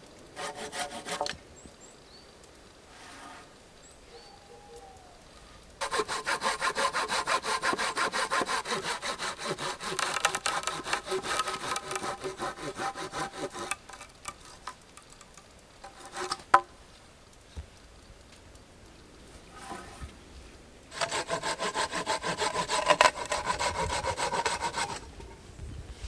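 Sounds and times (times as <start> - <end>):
hand saw cutting wood: 0.4 - 1.4, 5.8 - 14.8, 15.8 - 16.7, 19.6 - 20.0, 20.9 - 25.4.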